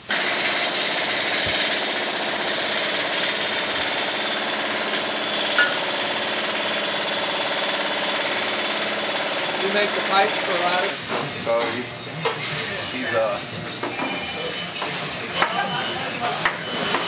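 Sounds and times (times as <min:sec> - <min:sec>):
power tool rattling: 0:00.0 - 0:11.0.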